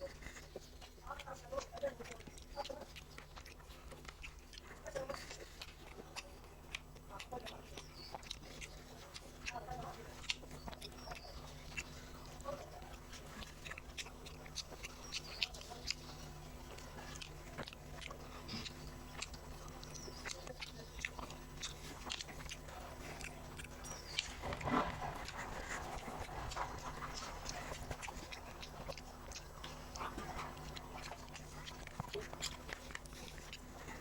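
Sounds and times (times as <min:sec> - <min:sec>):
person chewing: 0:00.0 - 0:34.0
steady low hum: 0:00.0 - 0:34.0
wet mouth clicks and smacks: 0:10.2 - 0:34.0.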